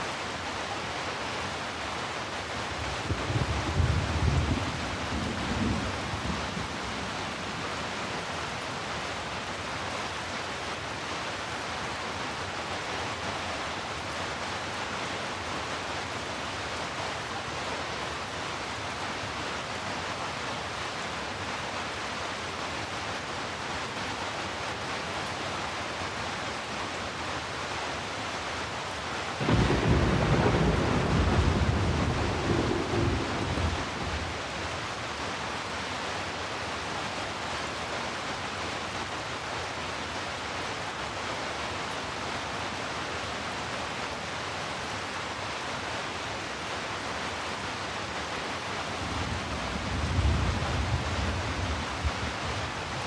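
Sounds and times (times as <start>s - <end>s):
heavy rain: 0.0s - 53.0s
low thunder rumble: 29.4s - 34.4s, 49.3s - 52.8s.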